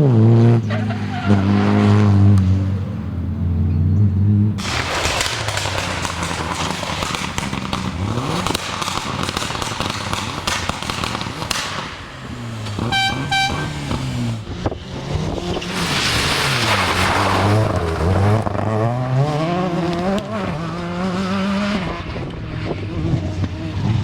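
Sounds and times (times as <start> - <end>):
rally car engine revving: 0.0 - 24.0
crackling and popping: 4.6 - 13.0.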